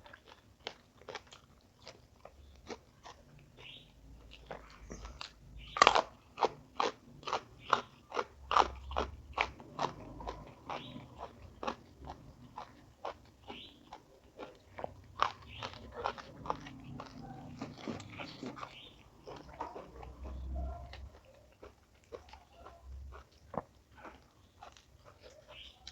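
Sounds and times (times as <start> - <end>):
person chewing crunchy food: 0.0 - 25.9.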